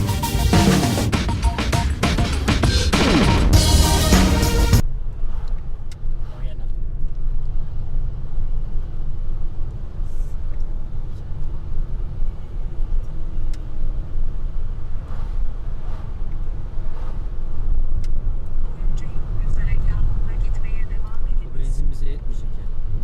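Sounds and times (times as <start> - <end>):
road and engine rumble in car: 4.8 - 23.0.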